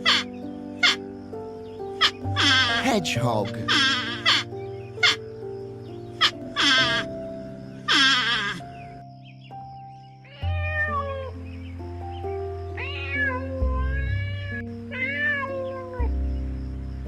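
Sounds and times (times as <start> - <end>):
animal cries: 0.0 - 1.0, 2.0 - 2.8, 3.6 - 5.2, 6.2 - 7.2, 7.9 - 8.8, 10.2 - 11.4, 12.7 - 16.1
background music: 0.0 - 17.0.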